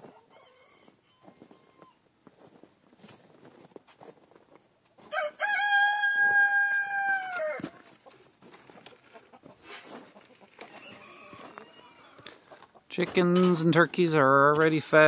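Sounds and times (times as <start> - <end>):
rooster crowing: 0.2 - 1.8, 5.1 - 7.7, 10.7 - 12.3.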